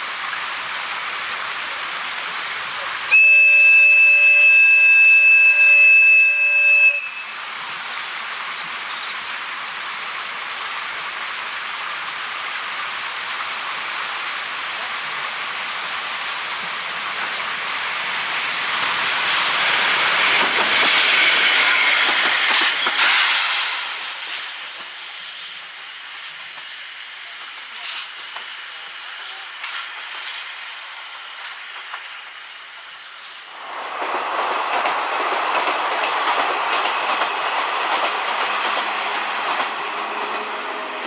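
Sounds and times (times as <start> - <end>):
train passing: 0.0 - 41.0
train horn: 3.1 - 7.4.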